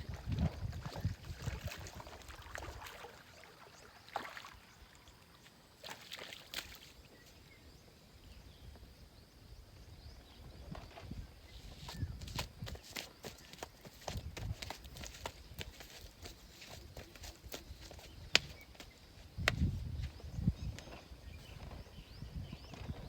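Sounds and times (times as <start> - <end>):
faint outdoor background: 0.0 - 23.0.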